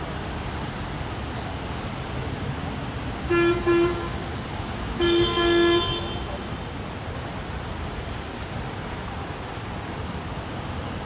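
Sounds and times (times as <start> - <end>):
steady background hiss: 0.0 - 11.0
vehicle horn honking: 3.3 - 4.2, 5.0 - 6.4.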